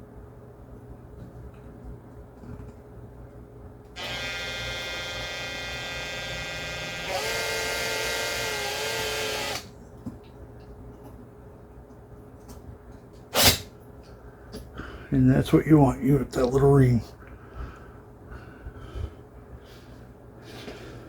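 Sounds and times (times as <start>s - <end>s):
electric drill whining: 4.0s - 9.7s.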